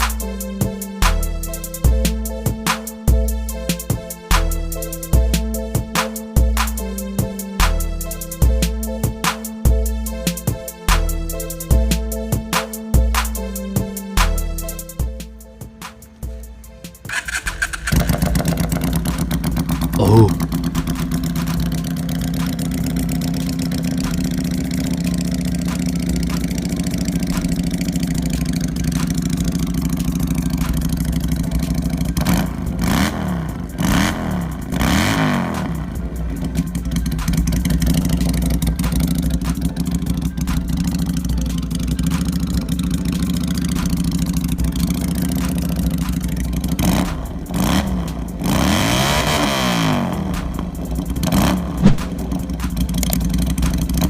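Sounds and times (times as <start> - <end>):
motorcycle engine idling: 15.0 - 48.4, 50.0 - 54.0
motorcycle throttle revving: 17.1 - 54.0.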